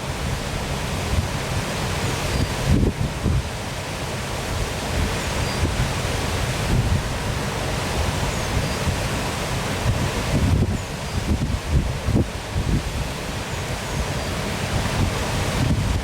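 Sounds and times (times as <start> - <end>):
waterfall roaring: 0.0 - 16.0
wind buffeting microphone: 2.3 - 3.6, 5.0 - 7.3, 8.0 - 16.0.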